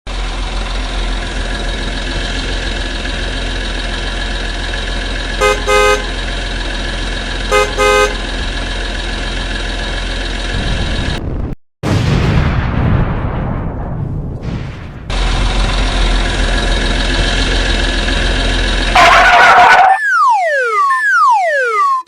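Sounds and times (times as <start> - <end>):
vehicle engine running: 0.1 - 11.6, 15.1 - 20.0
car horn honking: 5.4 - 6.2, 7.5 - 8.3.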